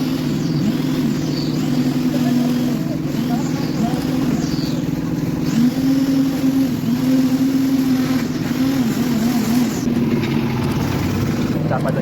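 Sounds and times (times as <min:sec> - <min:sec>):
concrete mixer engine running: 0:00.0 - 0:12.0.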